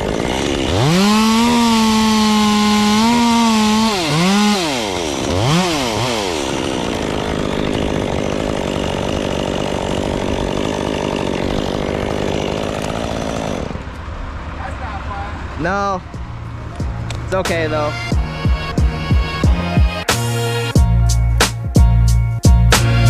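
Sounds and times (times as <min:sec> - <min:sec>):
chainsaw revving and idling: 0:00.0 - 0:14.0.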